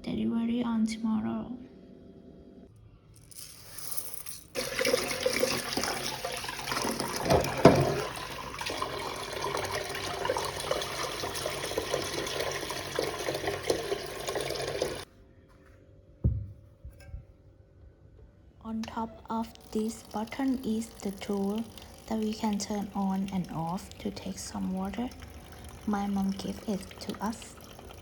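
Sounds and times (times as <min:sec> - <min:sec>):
water running from a tap: 0:03.3 - 0:15.1, 0:18.9 - 0:28.0
thump: 0:16.2 - 0:17.2.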